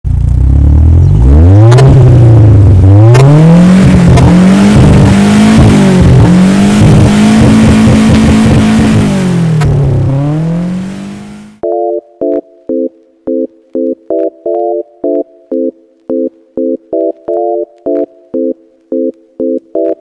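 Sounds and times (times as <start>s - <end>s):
car engine revving: 0.1s - 11.6s.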